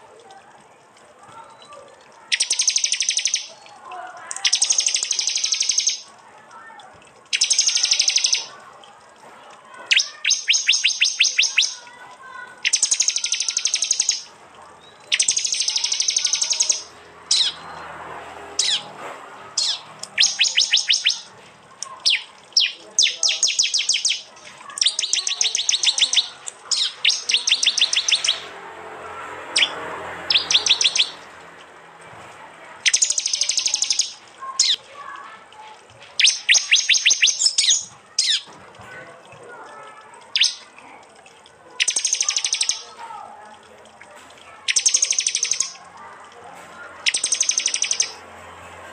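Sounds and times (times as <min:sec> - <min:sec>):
bird chips: 0:01.3 - 0:06.2, 0:07.2 - 0:31.6, 0:32.6 - 0:41.0, 0:41.7 - 0:43.0, 0:44.0 - 0:46.0, 0:46.7 - 0:48.9
bird trilling: 0:02.3 - 0:03.6, 0:04.3 - 0:06.1, 0:07.3 - 0:08.6, 0:09.8 - 0:17.8, 0:18.6 - 0:18.9, 0:19.6 - 0:28.5, 0:29.6 - 0:31.3, 0:32.8 - 0:35.0, 0:36.2 - 0:38.5, 0:40.3 - 0:40.7, 0:41.8 - 0:42.8, 0:44.7 - 0:45.9, 0:47.0 - 0:48.2.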